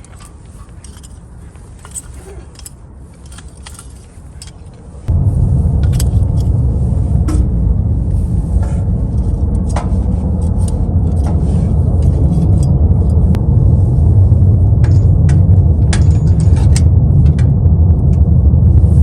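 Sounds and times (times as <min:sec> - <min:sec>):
low rumble of fire: 0:00.0 - 0:19.0.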